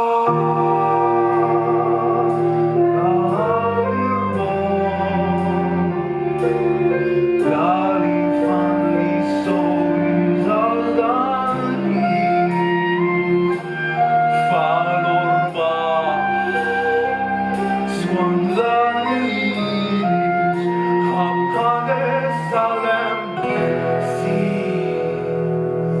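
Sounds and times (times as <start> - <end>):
ensemble playing live music: 0.0 - 26.0.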